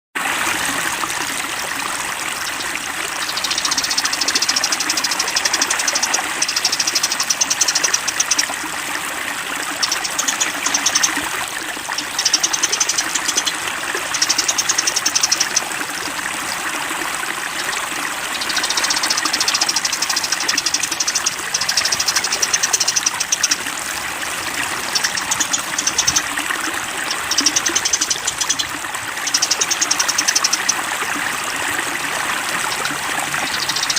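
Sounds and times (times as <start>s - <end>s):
water rushing: 0.2s - 33.9s
songbird trilling: 2.4s - 8.6s, 9.7s - 16.0s, 18.3s - 23.6s, 24.7s - 30.8s, 32.5s - 33.9s.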